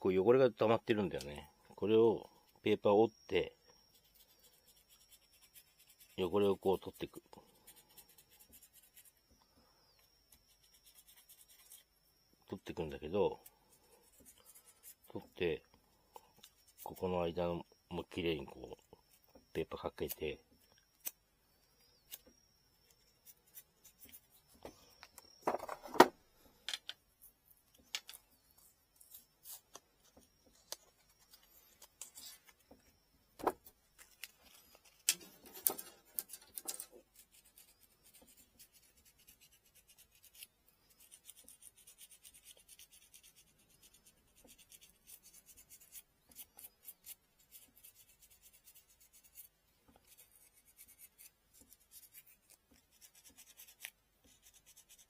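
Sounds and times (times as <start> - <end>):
sandpaper scratching on bamboo: 3.9 - 9.2, 10.3 - 11.9, 13.3 - 15.2, 34.8 - 55.0.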